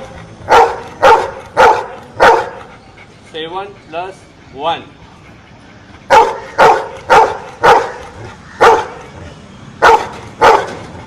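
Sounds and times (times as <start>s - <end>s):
dog barking: 0.5s - 2.6s, 6.1s - 9.0s, 9.8s - 10.8s.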